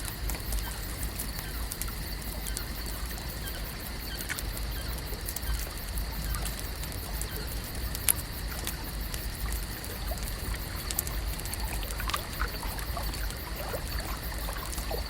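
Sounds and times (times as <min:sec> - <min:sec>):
small irregular ticks: 0:00.0 - 0:15.0
water washing: 0:09.3 - 0:15.0.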